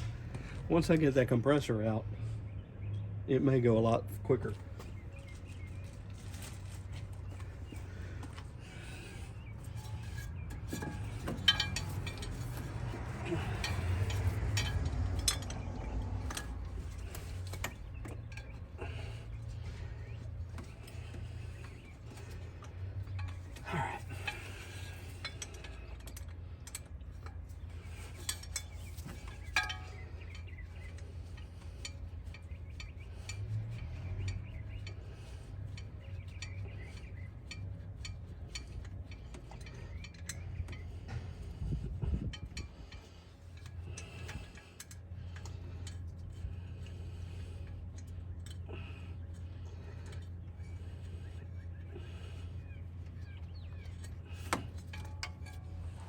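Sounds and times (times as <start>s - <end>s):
hand tools clinking on metal: 3.5s - 41.6s, 42.2s - 56.0s
low hum: 4.3s - 56.0s.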